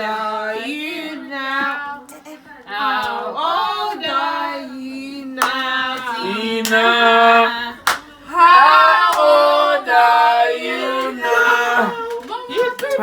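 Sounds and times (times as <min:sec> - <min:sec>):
group of people singing: 0:00.0 - 0:13.0
hand claps: 0:05.4 - 0:06.8, 0:07.8 - 0:08.1, 0:12.1 - 0:13.0.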